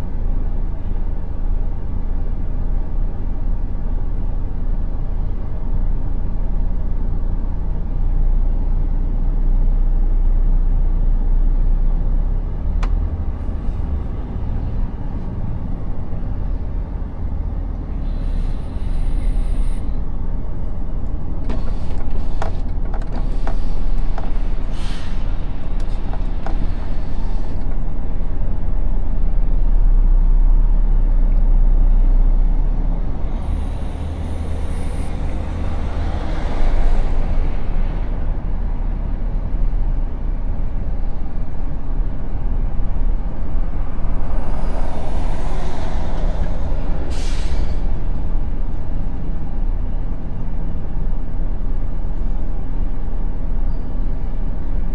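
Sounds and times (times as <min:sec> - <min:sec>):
diesel engine rumbling: 0:00.0 - 0:54.9
short air hiss: 0:18.0 - 0:20.0, 0:24.7 - 0:25.4, 0:47.1 - 0:48.0
clicks and knocks: 0:21.4 - 0:24.7.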